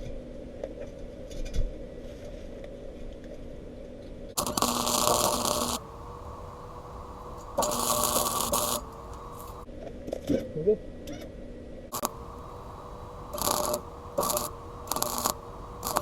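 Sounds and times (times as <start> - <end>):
faint steady hum: 4.3 - 9.7, 11.5 - 16.0
crackling welding arc: 4.4 - 9.7, 11.9 - 16.0.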